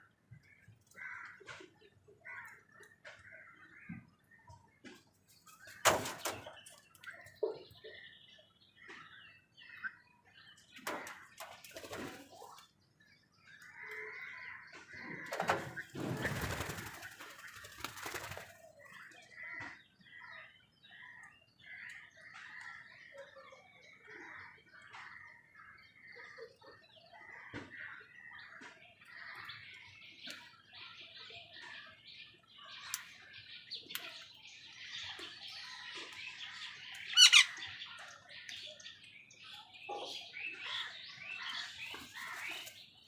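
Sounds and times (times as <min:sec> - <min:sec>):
birds chattering and squawking: 0:00.0 - 0:43.0
bird wings flapping: 0:15.4 - 0:18.6.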